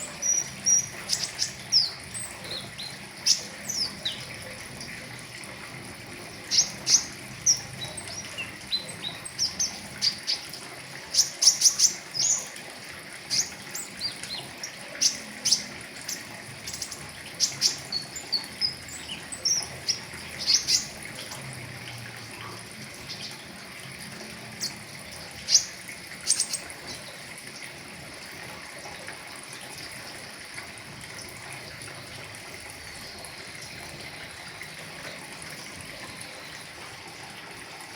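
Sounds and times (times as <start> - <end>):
bird chirping and chattering: 0.0 - 4.5, 6.5 - 10.4, 11.1 - 12.6, 13.3 - 21.0, 25.4 - 27.1.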